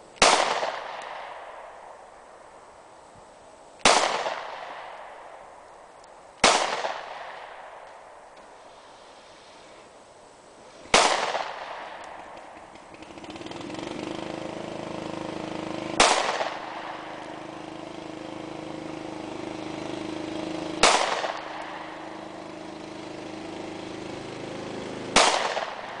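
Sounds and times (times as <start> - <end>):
steady low hum: 0.0 - 26.0
pistol shots: 0.2 - 1.7, 3.8 - 5.3, 6.4 - 7.9, 10.9 - 12.6, 16.0 - 17.2, 20.8 - 22.0, 25.1 - 26.0.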